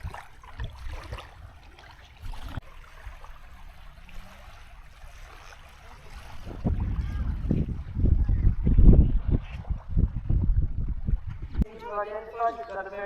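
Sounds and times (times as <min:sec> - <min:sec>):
small waves washing on sand: 0:00.0 - 0:08.0.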